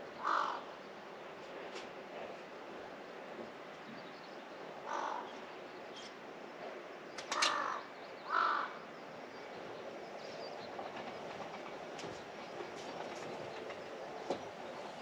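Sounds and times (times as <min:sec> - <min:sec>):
outdoor background hiss: 0:00.0 - 0:15.0
crow cawing: 0:00.2 - 0:00.6, 0:04.8 - 0:05.3, 0:07.4 - 0:08.8.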